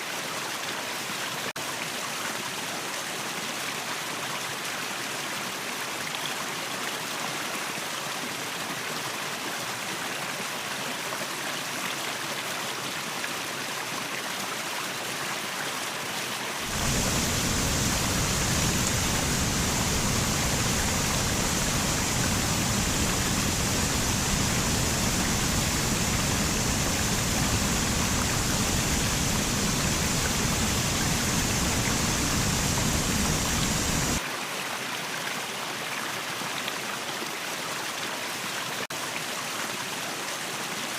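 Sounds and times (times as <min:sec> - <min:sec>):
waterfall rushing: 0:16.6 - 0:34.2.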